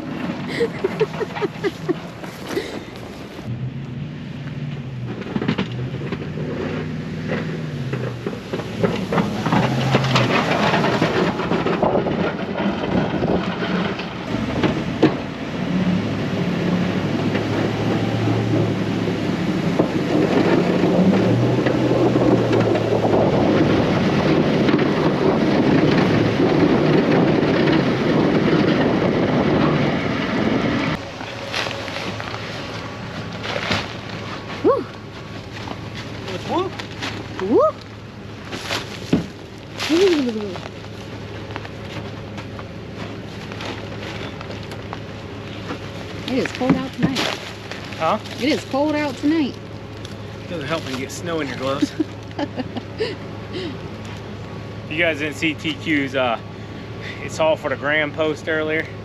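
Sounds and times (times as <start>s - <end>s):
gritty scraping and rattling: 0.0s - 3.5s, 4.6s - 52.7s
engine revving under load: 0.0s - 59.0s.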